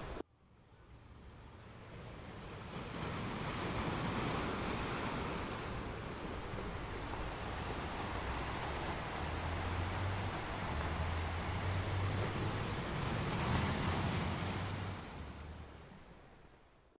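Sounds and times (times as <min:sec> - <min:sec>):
sea surf washing on beach: 0:00.0 - 0:00.2, 0:01.6 - 0:16.6.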